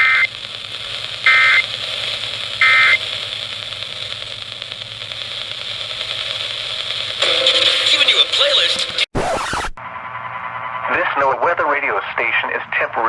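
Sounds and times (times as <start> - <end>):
buzzy digital data tone: 0.0 - 9.1
radio static hiss: 0.0 - 9.8, 10.9 - 13.0.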